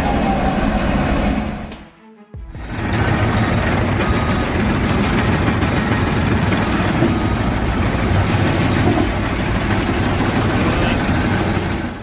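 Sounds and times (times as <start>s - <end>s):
heavy vehicle engine running: 0.0s - 1.8s, 2.5s - 12.0s.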